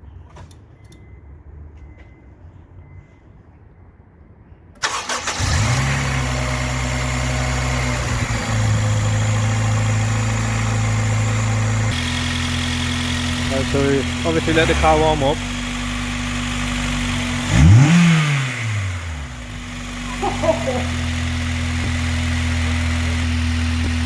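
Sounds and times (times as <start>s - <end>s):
car engine starting and idling: 4.8s - 24.0s.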